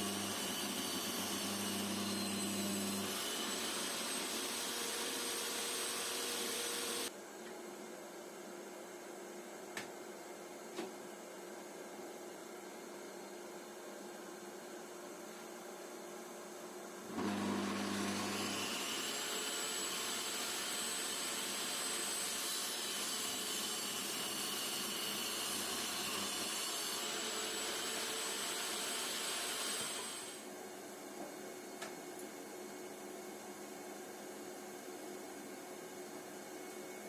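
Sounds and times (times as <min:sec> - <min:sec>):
power tool motor whining: 0:00.0 - 0:07.1, 0:17.2 - 0:30.4.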